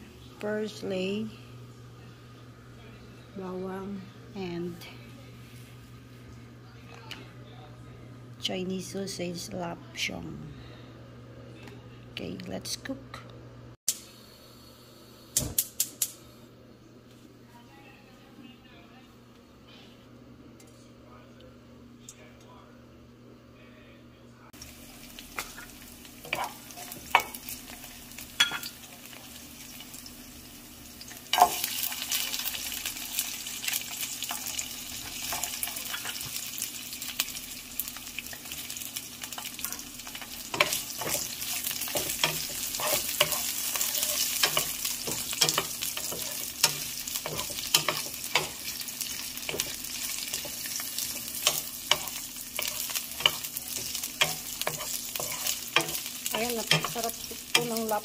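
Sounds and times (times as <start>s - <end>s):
food sizzling in a pan: 24.6s - 58.0s
spatula scraping a pan: 40.1s - 48.8s, 49.4s - 57.8s.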